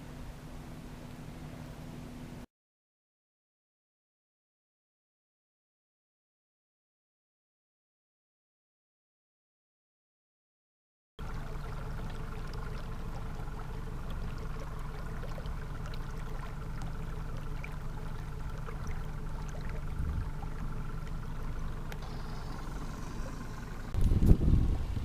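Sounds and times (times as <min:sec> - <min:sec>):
boat motor running: 0:11.2 - 0:25.0.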